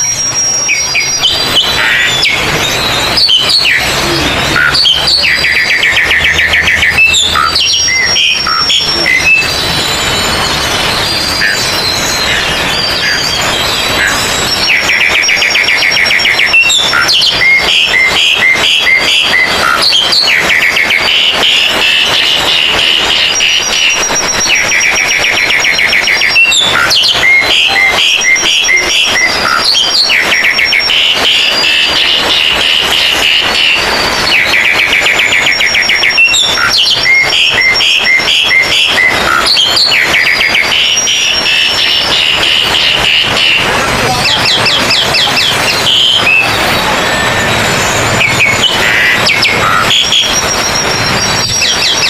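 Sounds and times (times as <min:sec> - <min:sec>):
fast bird trill: 0:00.0 - 0:52.0
whistled bird notes: 0:00.0 - 0:52.0.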